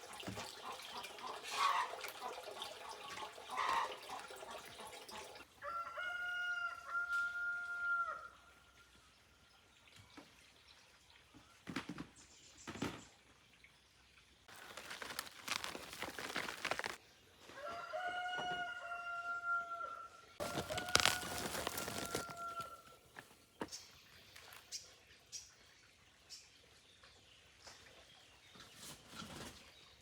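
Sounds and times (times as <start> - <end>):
rooster crowing: 5.6 - 8.3, 17.6 - 22.9
rustling and scraping: 14.5 - 17.0, 20.4 - 23.3.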